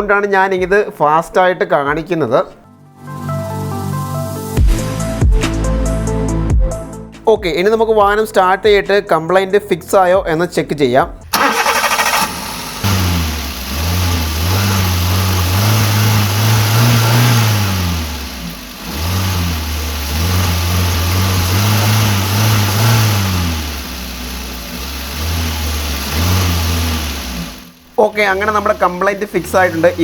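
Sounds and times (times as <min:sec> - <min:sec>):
car engine revving: 0:11.3 - 0:30.0.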